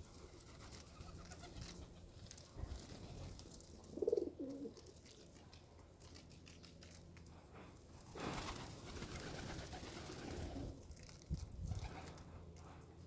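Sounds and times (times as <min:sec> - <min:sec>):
pigeon cooing: 0:03.9 - 0:04.8.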